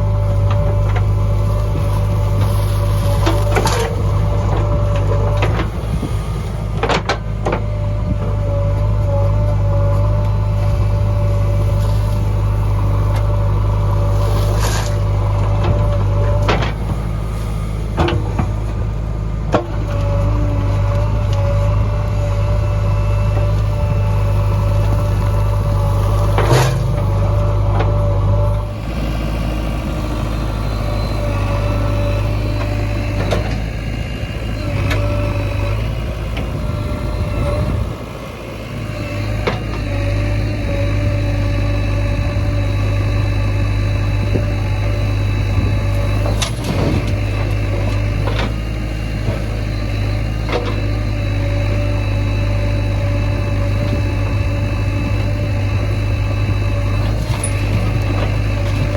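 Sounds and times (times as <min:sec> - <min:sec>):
diesel engine droning: 0:00.0 - 0:58.9.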